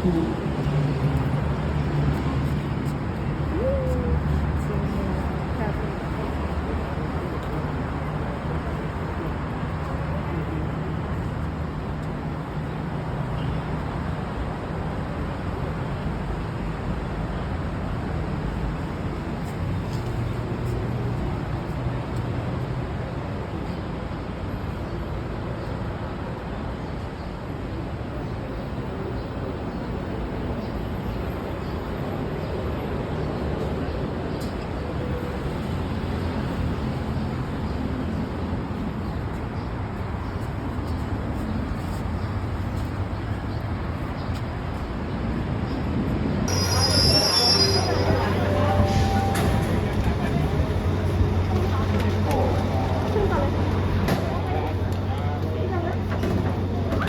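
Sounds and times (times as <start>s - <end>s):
train rumbling: 46.2s - 57.0s.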